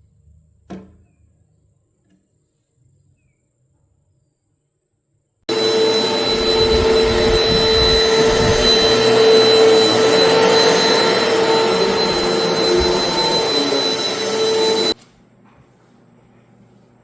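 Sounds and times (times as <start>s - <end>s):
vacuum cleaner motor running: 5.5s - 15.0s.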